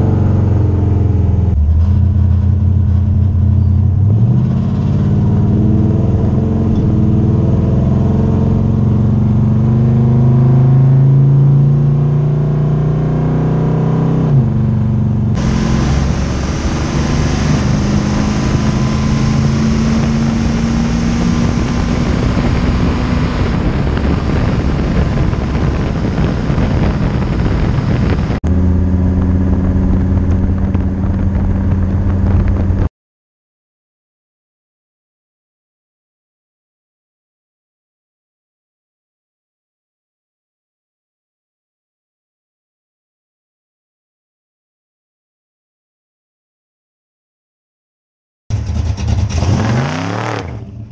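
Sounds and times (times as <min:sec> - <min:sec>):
car engine cruising: 0:00.0 - 0:32.9, 0:48.5 - 0:50.9.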